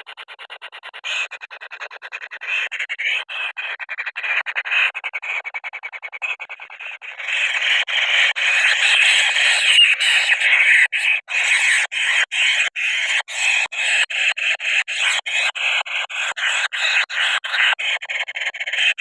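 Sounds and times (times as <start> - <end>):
chicks begging with rasping calls: 2.4 - 3.3, 6.2 - 19.0.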